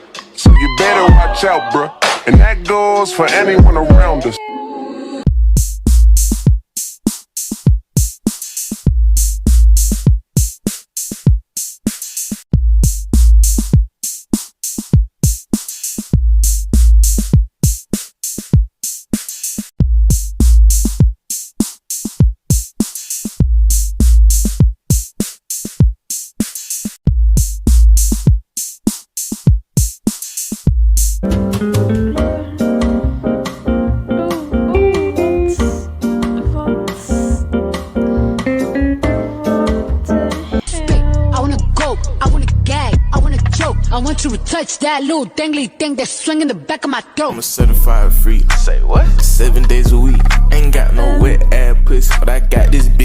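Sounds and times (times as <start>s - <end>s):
electronic drum beat: 0.0s - 4.4s, 5.3s - 44.4s, 47.6s - 53.0s
deep bass note: 47.6s - 53.0s.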